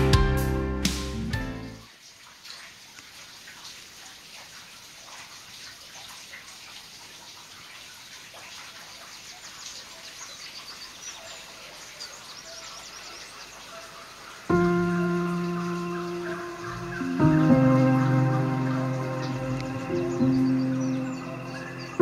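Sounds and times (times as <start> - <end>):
bird chirps: 9.2 - 22.0.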